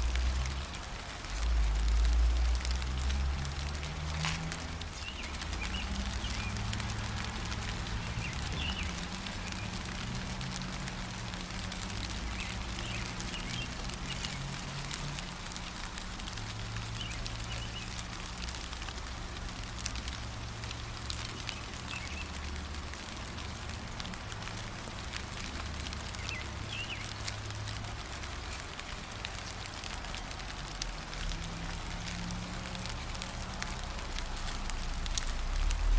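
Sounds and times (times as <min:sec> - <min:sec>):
gentle rain: 0:00.0 - 0:35.9
bird chirps: 0:08.1 - 0:09.7, 0:21.4 - 0:22.3, 0:26.2 - 0:27.2.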